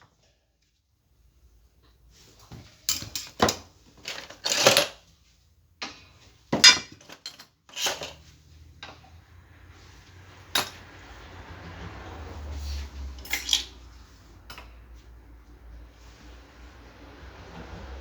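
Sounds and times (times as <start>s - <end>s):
metal tools clinking: 2.9s - 5.0s, 5.8s - 9.0s, 13.2s - 13.8s.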